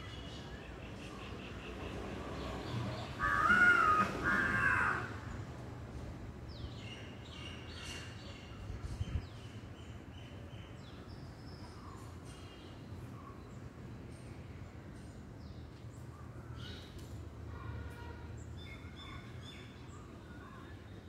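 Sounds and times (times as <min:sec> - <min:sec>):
loud bird calls: 0:01.0 - 0:05.3.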